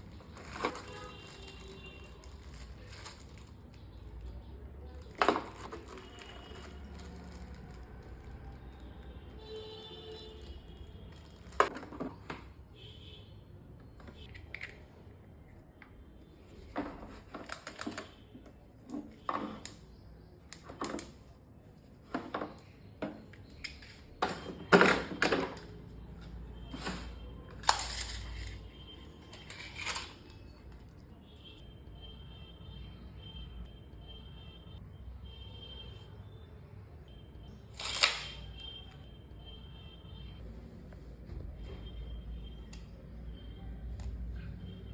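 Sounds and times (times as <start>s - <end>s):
tools clicking and clinking: 27.6s - 28.6s, 37.8s - 38.4s.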